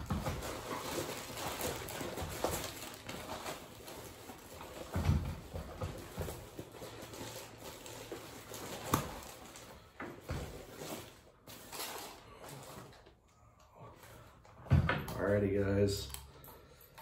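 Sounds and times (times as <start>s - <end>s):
packaging rustling: 0.0s - 13.2s.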